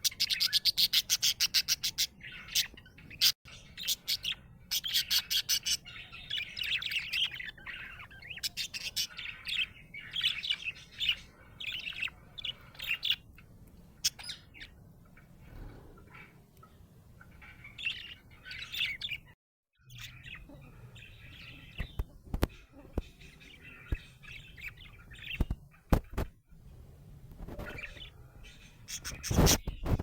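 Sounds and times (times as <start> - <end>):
budgerigar chirping and warbling: 0.0 - 13.4, 14.0 - 14.8, 17.2 - 19.3, 27.5 - 30.0.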